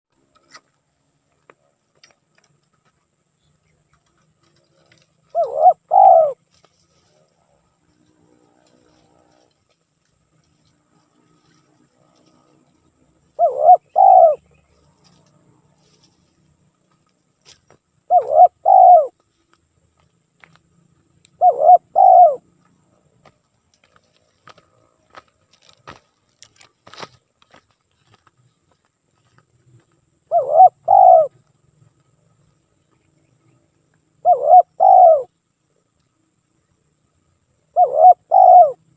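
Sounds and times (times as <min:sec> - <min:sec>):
dove cooing: 0:04.8 - 0:07.6, 0:11.4 - 0:14.6, 0:18.1 - 0:19.2, 0:21.3 - 0:22.6, 0:30.3 - 0:31.5, 0:34.2 - 0:35.3, 0:37.7 - 0:38.9.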